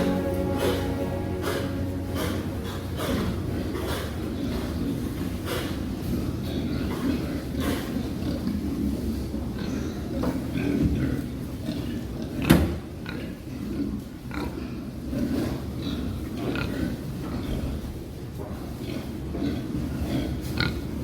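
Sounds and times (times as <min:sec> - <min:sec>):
steady low rumble: 0:00.0 - 0:06.5.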